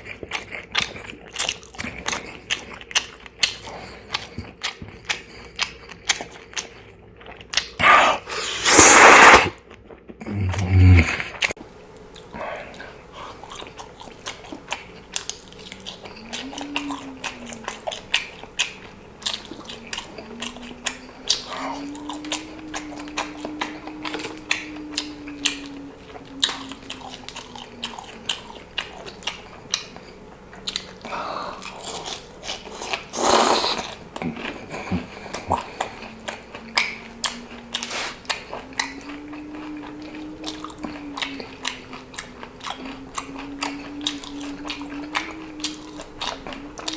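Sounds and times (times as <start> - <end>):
person chewing food: 0.0 - 46.9
loud crunch or slurp: 7.6 - 9.6, 31.6 - 39.0.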